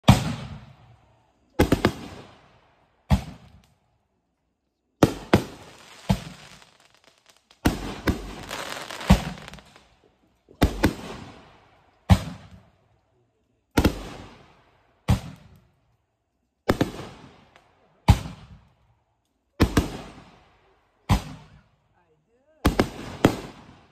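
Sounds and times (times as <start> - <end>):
fireworks bangs: 0.0 - 1.0, 1.6 - 3.6, 5.0 - 9.9, 10.6 - 12.6, 13.7 - 15.6, 16.6 - 18.6, 19.6 - 20.4, 21.0 - 21.6, 22.6 - 23.9
fireworks crackling: 1.5 - 2.4, 5.0 - 12.6.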